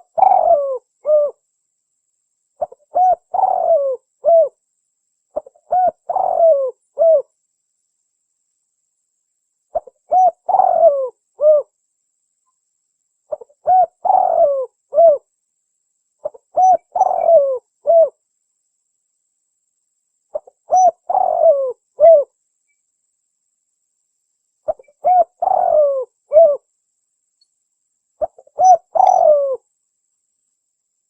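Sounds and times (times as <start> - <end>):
dove cooing: 0.0 - 1.4, 2.6 - 4.6, 5.4 - 7.3, 9.8 - 11.7, 13.3 - 15.3, 16.2 - 18.2, 20.4 - 22.3, 24.7 - 26.7, 28.2 - 29.6.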